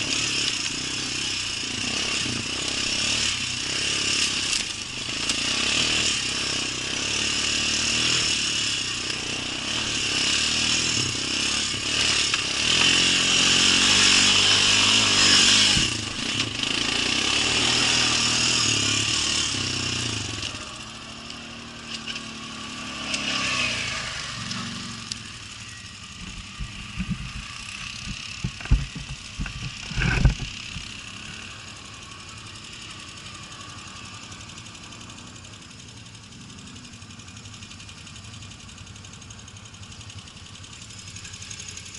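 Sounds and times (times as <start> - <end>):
atv engine running: 0.0 - 41.9
sharp knocks: 26.2 - 30.5.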